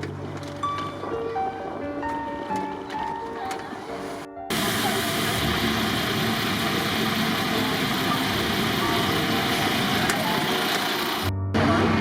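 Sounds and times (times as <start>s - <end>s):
road train engine: 4.5s - 12.0s.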